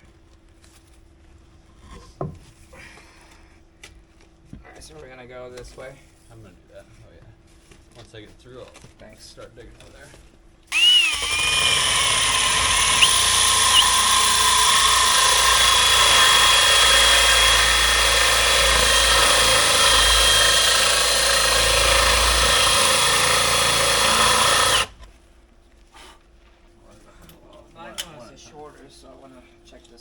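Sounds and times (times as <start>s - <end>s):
angle grinder whining: 10.7s - 25.0s.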